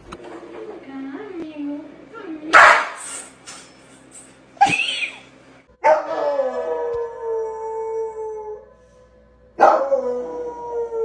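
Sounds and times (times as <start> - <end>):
dog howling: 5.8 - 8.7, 9.6 - 11.0.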